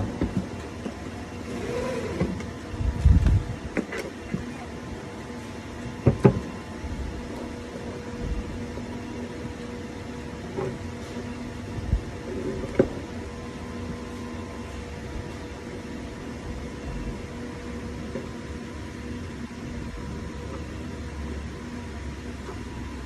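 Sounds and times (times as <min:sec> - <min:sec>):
welding machine electrical hum: 0:00.0 - 0:23.0.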